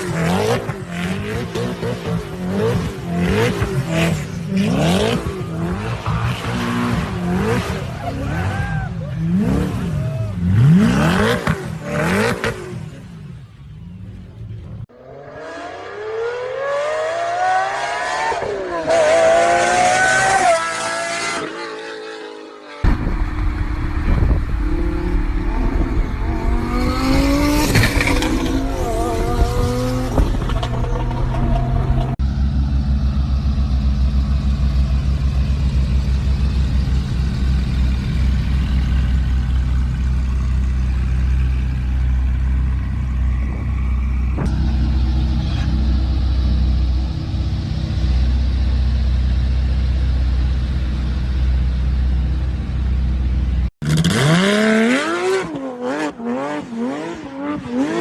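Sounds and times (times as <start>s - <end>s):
deep exhaust rumble: 22.9s - 53.7s.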